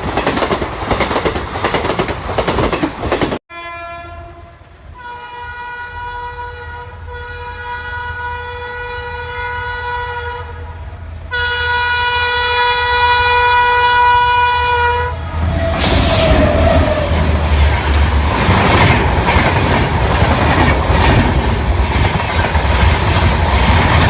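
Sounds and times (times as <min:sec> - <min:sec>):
rush of train passing: 0:00.0 - 0:03.4, 0:12.9 - 0:24.0
train rumble: 0:00.0 - 0:03.4, 0:10.6 - 0:24.0
locomotive horn: 0:03.5 - 0:17.2.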